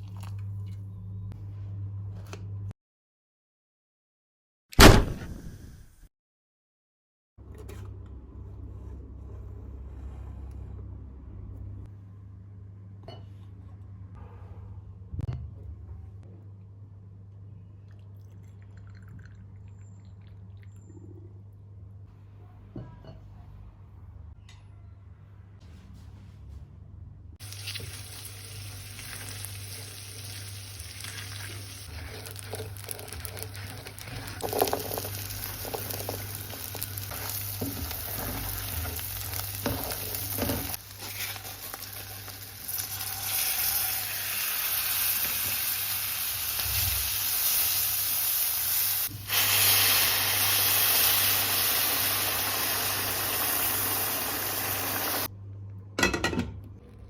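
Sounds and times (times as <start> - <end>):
food sizzling in a frying pan: 27.4 - 55.3.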